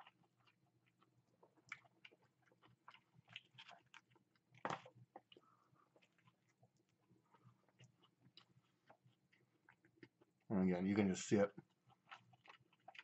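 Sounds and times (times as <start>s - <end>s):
faint chewing: 0.0s - 13.0s.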